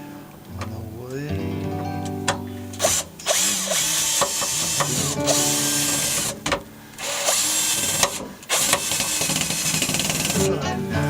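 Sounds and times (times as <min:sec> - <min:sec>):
background music: 0:00.0 - 0:11.0
power drill driving screws: 0:02.7 - 0:10.6.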